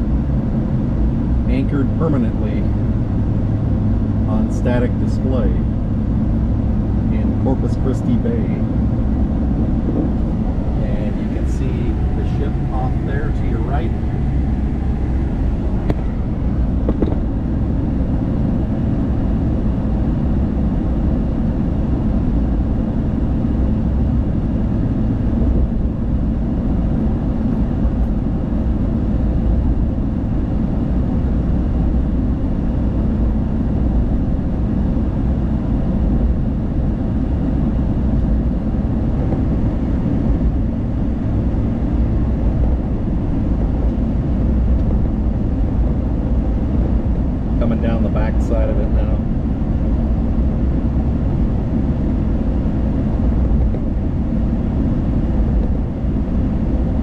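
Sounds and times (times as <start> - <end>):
car engine: 0.0 - 19.7, 37.6 - 56.8
wind: 0.0 - 57.0
tyres rumbling on road: 1.1 - 18.8.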